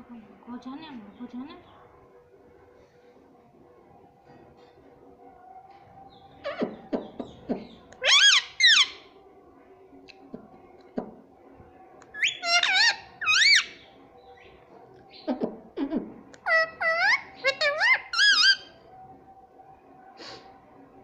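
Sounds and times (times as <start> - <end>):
parrot squeaky calls: 6.4 - 7.1, 8.0 - 9.0, 12.2 - 13.8, 16.4 - 18.8.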